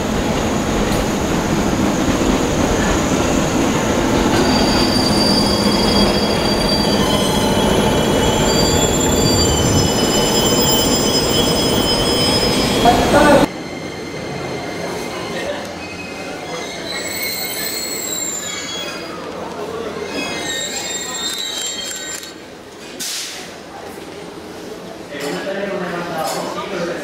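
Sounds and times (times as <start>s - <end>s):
train wheels rumbling on rails: 0.0s - 13.6s
high-pitched wheel squeal: 4.3s - 15.2s, 15.8s - 19.1s.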